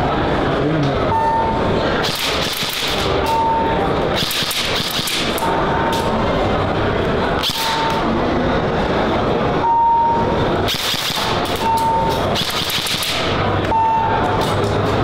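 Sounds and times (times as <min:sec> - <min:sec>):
airsoft guns firing full-auto: 0:02.0 - 0:03.2, 0:04.1 - 0:05.4, 0:10.7 - 0:11.6, 0:12.4 - 0:13.4.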